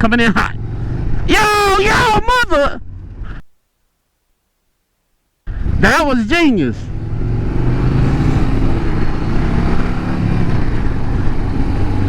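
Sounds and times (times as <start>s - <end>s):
motorcycle engine cruising: 0.0s - 1.7s, 6.8s - 12.0s.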